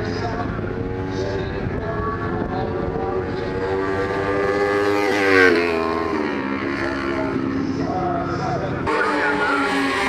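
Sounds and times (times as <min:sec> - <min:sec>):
racing motorcycle engine passing: 0:00.0 - 0:10.0.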